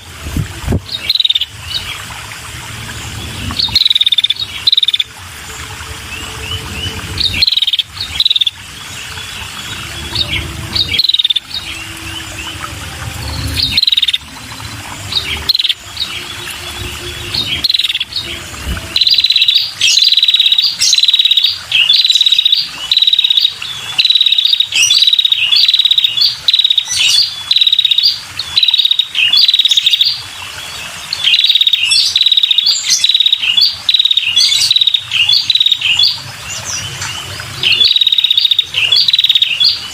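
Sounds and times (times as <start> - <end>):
low rumble: 1.6 - 19.3.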